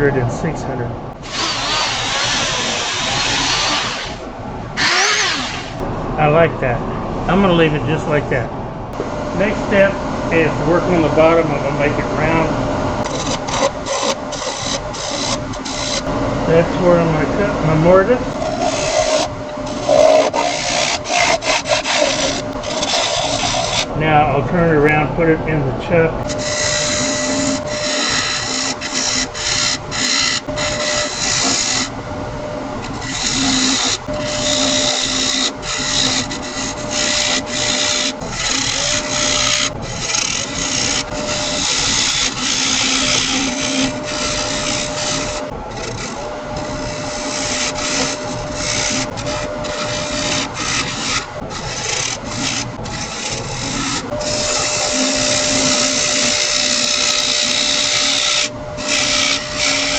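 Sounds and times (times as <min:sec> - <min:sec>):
wood lathe whining: 0:00.0 - 0:59.9
turning tool scraping wood: 0:01.1 - 0:05.9, 0:08.9 - 0:25.0, 0:26.1 - 0:59.9.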